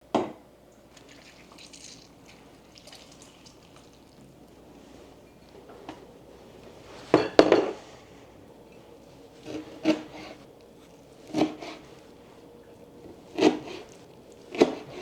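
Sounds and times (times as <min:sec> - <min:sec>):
dishes and utensils knocking: 0:07.1 - 0:07.8.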